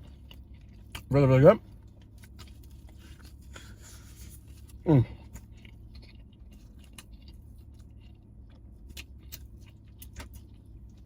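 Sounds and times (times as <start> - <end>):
person chewing: 0.0 - 11.0
steady low hum: 0.0 - 11.0.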